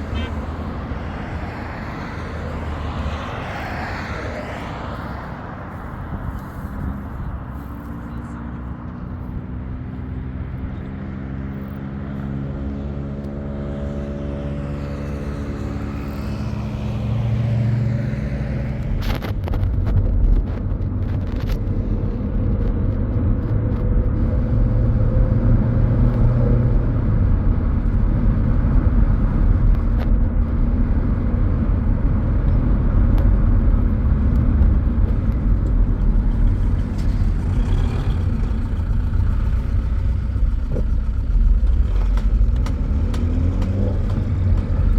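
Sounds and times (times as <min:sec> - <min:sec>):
vehicle engine accelerating: 0:00.0 - 0:44.9.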